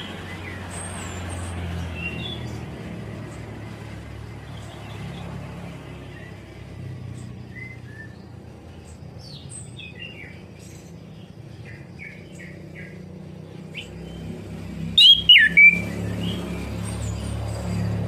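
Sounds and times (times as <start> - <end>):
thrush singing whistled notes: 0.0 - 18.0.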